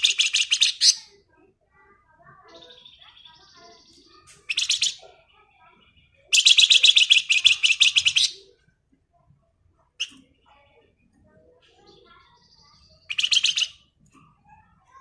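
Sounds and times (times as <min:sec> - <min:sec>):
songbird twittering: 0:00.0 - 0:01.2, 0:02.5 - 0:08.5, 0:11.8 - 0:13.9.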